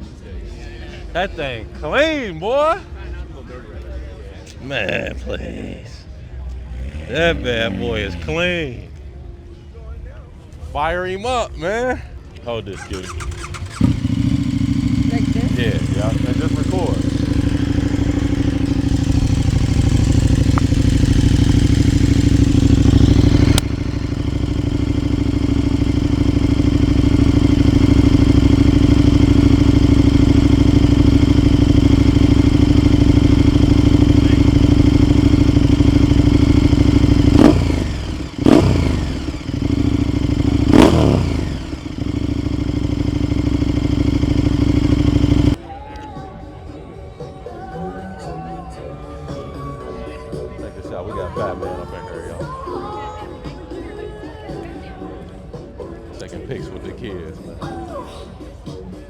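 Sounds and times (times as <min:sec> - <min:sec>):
car engine idling and revving: 0:06.3 - 0:08.7, 0:12.7 - 0:45.6.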